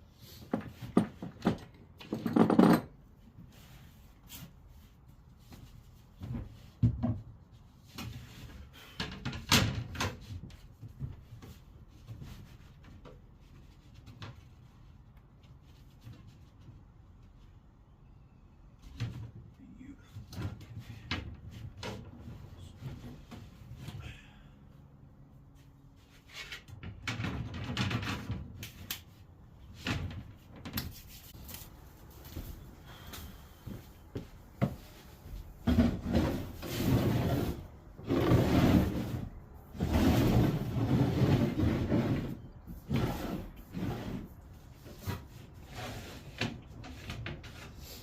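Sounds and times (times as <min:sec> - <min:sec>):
wooden boards knocking and clattering: 0:00.5 - 0:03.0.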